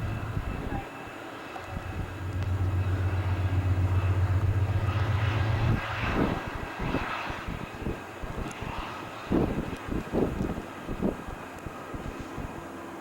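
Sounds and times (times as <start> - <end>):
diesel locomotive engine drone: 0.0 - 13.0
train rushing with knocks: 1.8 - 8.0.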